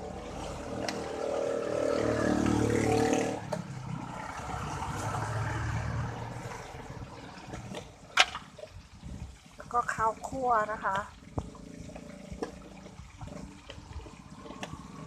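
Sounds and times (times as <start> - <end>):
vehicle engine passing by: 0.0 - 7.8.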